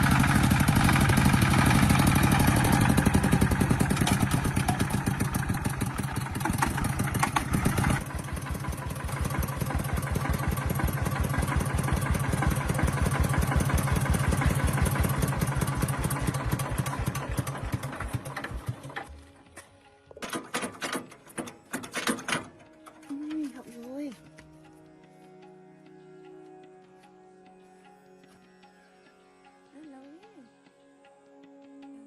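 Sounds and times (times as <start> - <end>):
truck engine running: 0.0 - 19.5.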